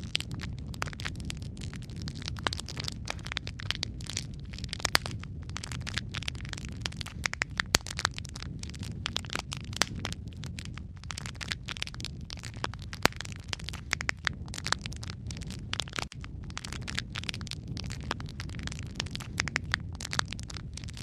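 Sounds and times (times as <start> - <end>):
log fire crackling and popping: 0.0 - 21.0
low rumble of flames: 0.0 - 21.0.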